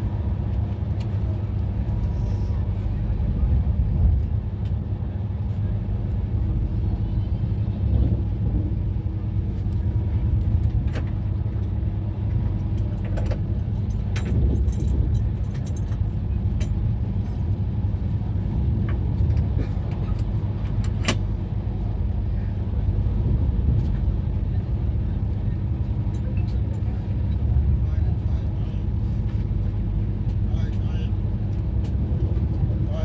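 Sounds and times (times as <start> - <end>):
train rumbling: 0.0 - 33.0
light metallic rattles and clinks: 12.9 - 16.8.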